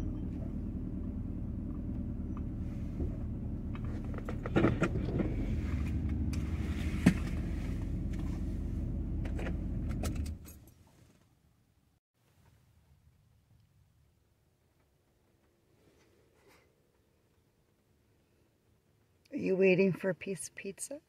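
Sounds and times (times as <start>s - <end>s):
van engine humming: 0.0s - 10.6s.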